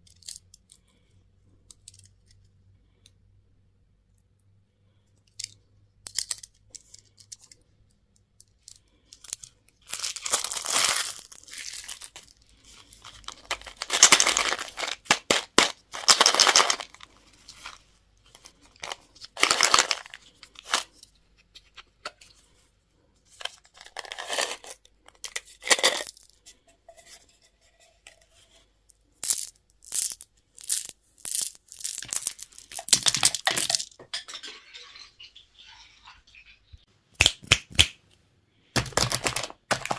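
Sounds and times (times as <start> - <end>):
candy packaging tearing and crinkling: 9.2 - 17.8, 18.4 - 20.9, 23.7 - 26.2, 29.3 - 33.9, 38.8 - 39.9.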